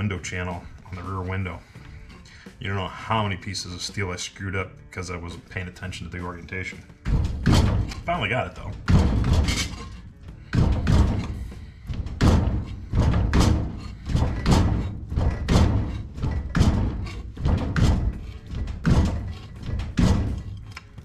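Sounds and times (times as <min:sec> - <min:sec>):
metal shrinker clunking on steel: 0:06.2 - 0:21.0.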